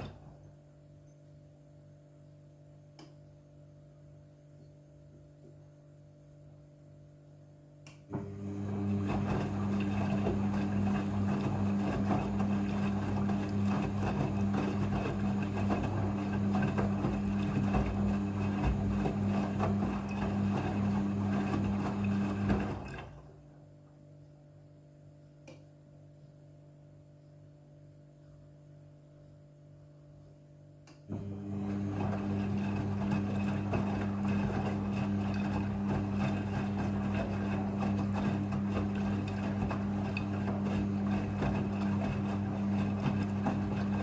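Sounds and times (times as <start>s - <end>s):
washing machine humming and rushing: 0.0s - 0.5s, 8.0s - 23.8s, 31.0s - 44.0s.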